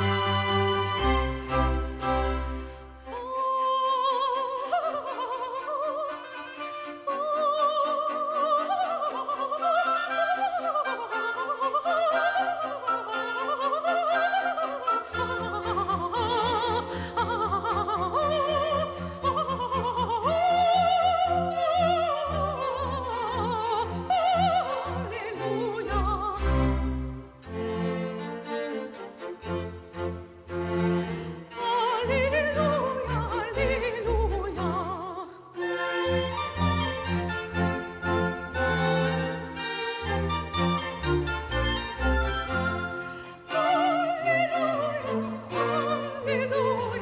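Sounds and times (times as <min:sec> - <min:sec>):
classical orchestra: 0:00.0 - 0:47.0
operatic soprano singing: 0:02.3 - 0:29.0, 0:30.9 - 0:35.7, 0:41.9 - 0:47.0.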